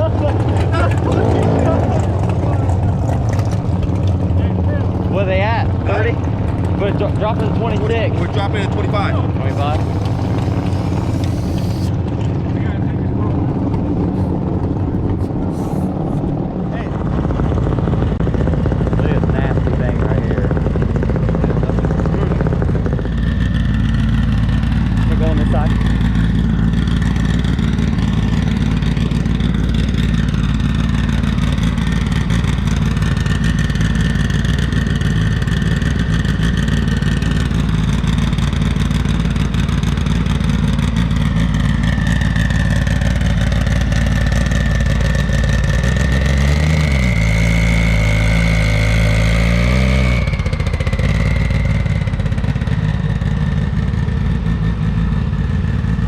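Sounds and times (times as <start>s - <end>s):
racing car engines running: 0.0s - 56.0s
high-pitched whine: 9.4s - 12.0s, 46.8s - 53.2s.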